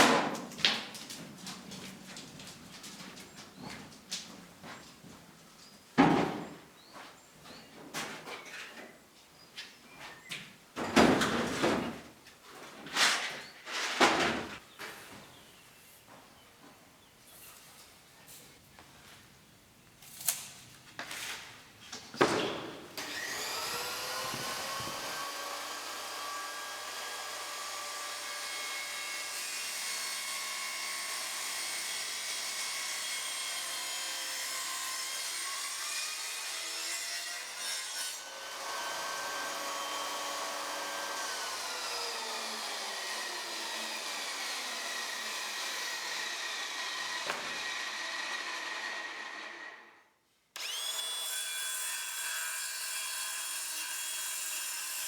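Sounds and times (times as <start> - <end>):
power tool cutting wood: 23.0 - 55.0.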